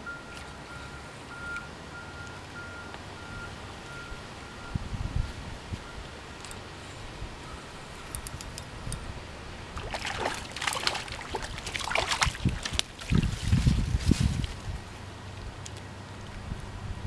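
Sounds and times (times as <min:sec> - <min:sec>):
stream water running: 0:00.0 - 0:17.0
water splashing and sloshing: 0:07.8 - 0:16.4.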